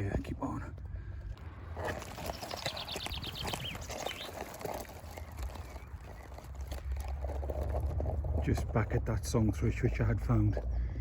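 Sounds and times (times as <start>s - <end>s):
twigs crackling and rustling: 1.3s - 9.0s
songbird trilling: 2.2s - 6.2s.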